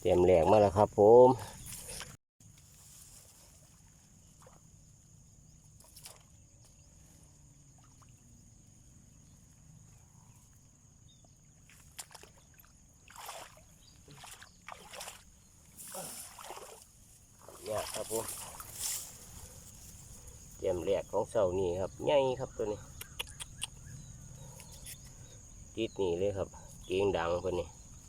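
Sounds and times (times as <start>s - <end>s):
water splashing and sloshing: 1.6s - 10.0s, 10.6s - 20.3s.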